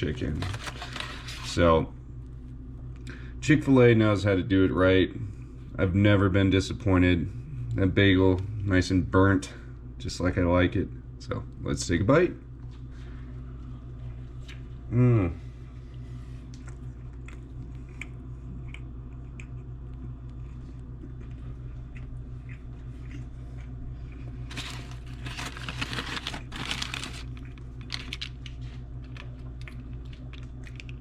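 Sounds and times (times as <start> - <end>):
sandwich wrapper crinkling: 0.0 - 1.6, 24.2 - 31.0
steady low hum: 0.0 - 31.0
man chewing food: 12.6 - 15.0, 15.6 - 31.0.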